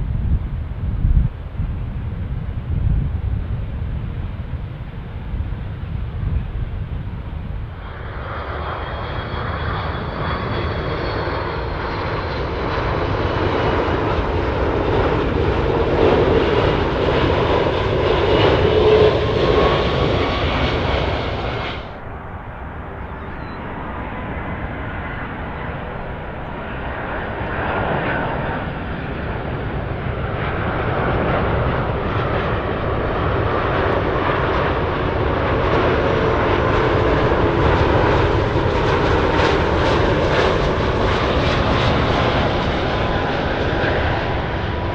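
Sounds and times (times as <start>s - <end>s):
jet airliner engines landing: 0.0s - 44.9s.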